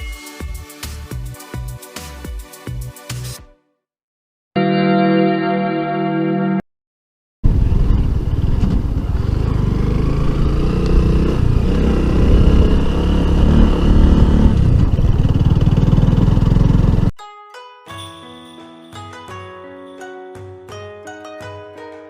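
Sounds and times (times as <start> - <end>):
motorcycle engine running: 7.5 - 17.1.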